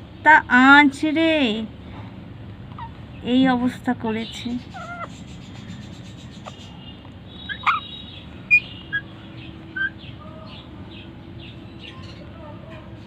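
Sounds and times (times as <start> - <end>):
birds chirping and squawking: 2.6 - 13.0
faint bird chirping: 2.7 - 13.0.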